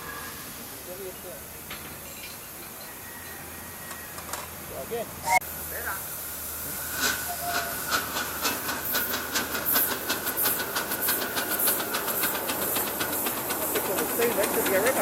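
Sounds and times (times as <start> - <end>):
steam locomotive exhaust chuffs: 5.5 - 15.0.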